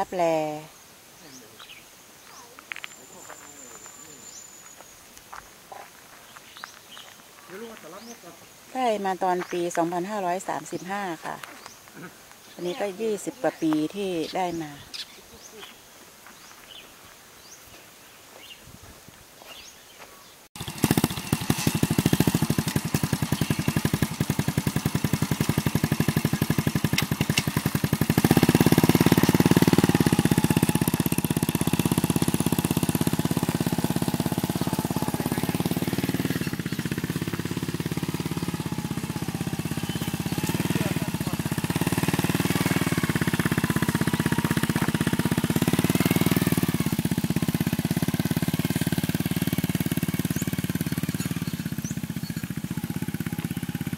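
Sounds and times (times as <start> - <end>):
motorcycle engine running: 20.6 - 53.9.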